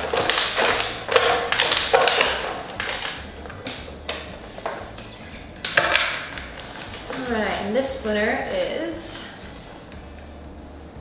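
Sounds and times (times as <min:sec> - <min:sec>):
paper tickets rustling in drum: 0:00.0 - 0:10.4.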